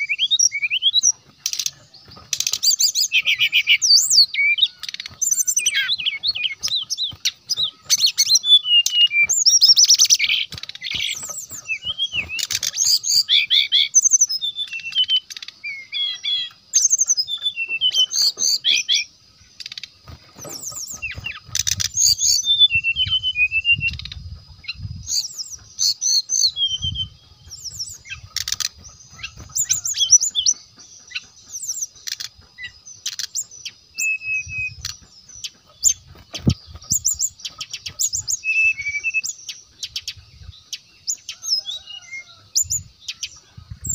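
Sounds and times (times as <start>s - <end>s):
bird chirping and twittering: 0.0s - 43.9s.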